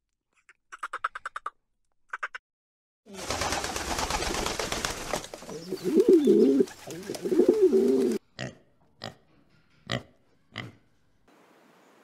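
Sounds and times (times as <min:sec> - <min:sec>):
pigeons cooing: 0:05.4 - 0:08.2.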